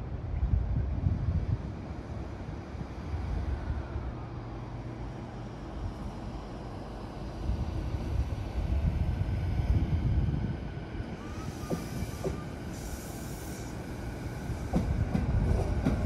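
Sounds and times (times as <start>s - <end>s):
electric train pulling away: 11.1s - 14.8s.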